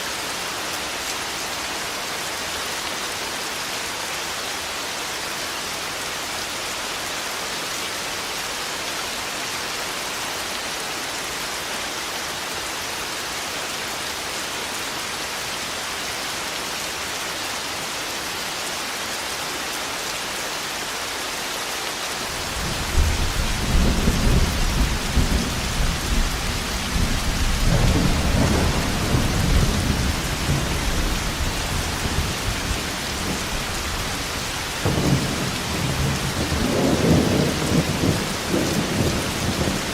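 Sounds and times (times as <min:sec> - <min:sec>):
heavy rain: 0:00.0 - 0:39.9
thunder rumbling: 0:22.5 - 0:33.8, 0:34.8 - 0:39.9.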